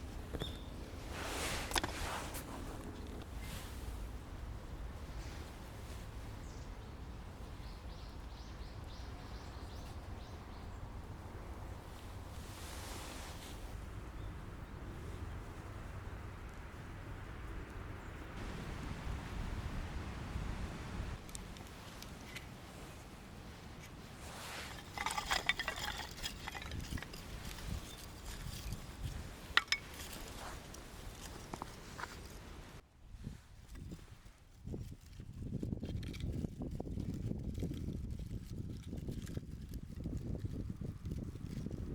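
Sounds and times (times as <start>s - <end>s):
steady low rumble: 13.6s - 21.8s.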